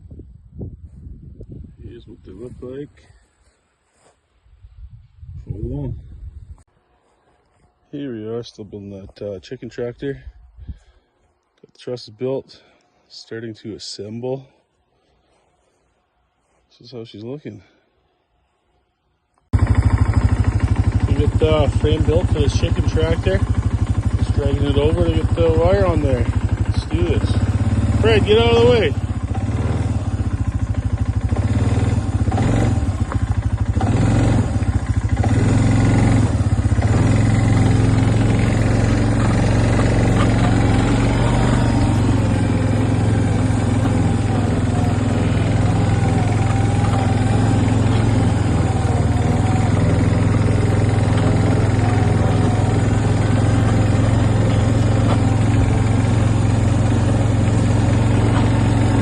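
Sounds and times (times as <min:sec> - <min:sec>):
frame dragging across ground: 0:02.2 - 0:04.2, 0:35.0 - 0:59.0
vehicle engine running: 0:19.5 - 0:59.0.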